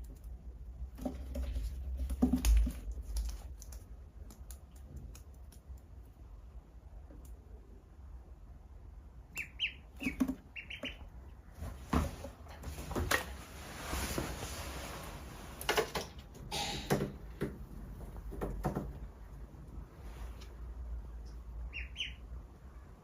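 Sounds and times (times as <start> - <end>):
duckling peeping: 9.2 - 11.5, 21.4 - 22.4
rustling: 10.0 - 16.3.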